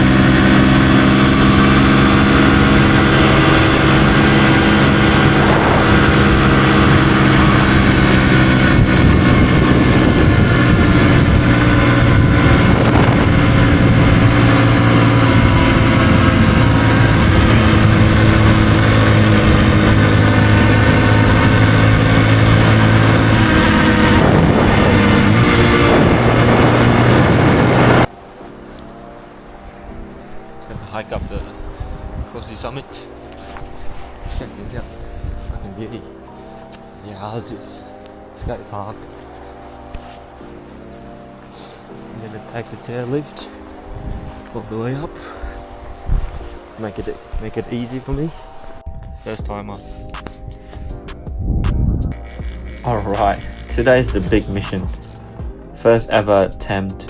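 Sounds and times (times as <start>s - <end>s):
motorcycle engine running: 0.0s - 28.7s, 50.2s - 57.0s.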